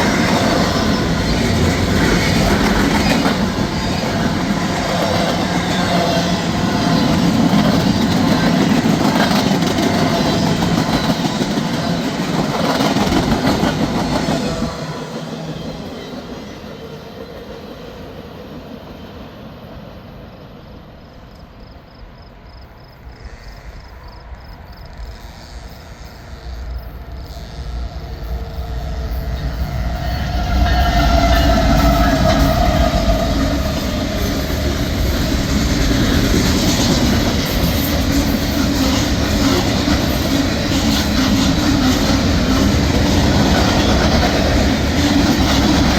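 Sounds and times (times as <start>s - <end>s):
freight train rumbling on rails: 0.0s - 45.9s.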